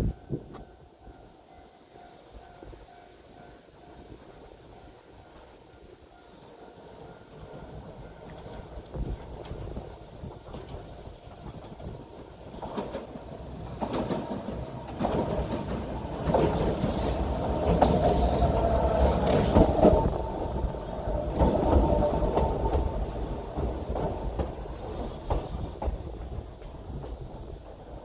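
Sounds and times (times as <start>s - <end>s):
train whine: 0.0s - 28.0s
train wheels clicking over rail joints: 6.5s - 28.0s.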